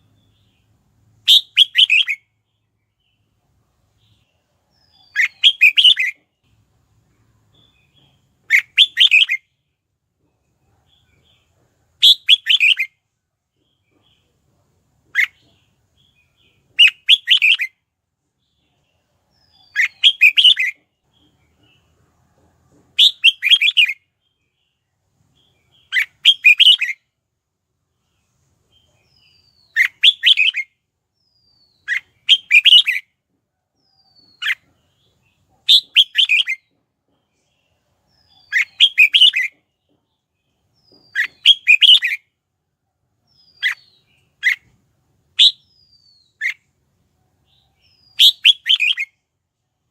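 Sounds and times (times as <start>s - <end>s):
bird singing warbled phrases: 0.0s - 3.4s, 4.0s - 6.6s, 7.5s - 9.6s, 10.8s - 13.0s, 15.0s - 17.8s, 18.4s - 21.8s, 23.0s - 27.1s, 28.0s - 33.1s, 33.8s - 36.8s, 37.4s - 42.4s, 43.3s - 46.8s, 47.4s - 49.3s.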